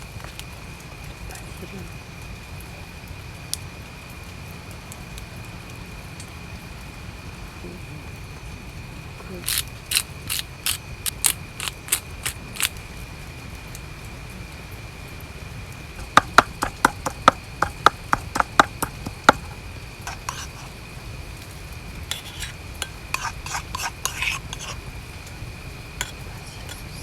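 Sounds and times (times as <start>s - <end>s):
cooking utensils clicking: 9.4s - 12.8s, 16.0s - 20.7s, 22.1s - 24.8s
dishes clinking: 16.0s - 20.7s, 22.1s - 24.8s.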